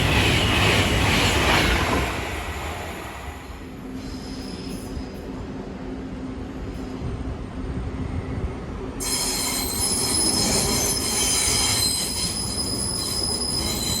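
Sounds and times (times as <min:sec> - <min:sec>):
train rumbling on rails: 0:00.0 - 0:14.0
high-pitched metallic squeal: 0:09.0 - 0:14.0.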